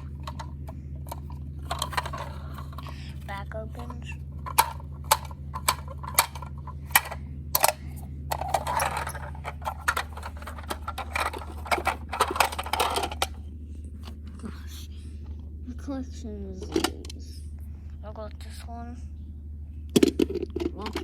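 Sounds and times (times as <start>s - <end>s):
plastic toy rattling and scraping: 0.0s - 13.4s, 16.5s - 17.4s
plastic toy clicks: 4.4s - 9.0s.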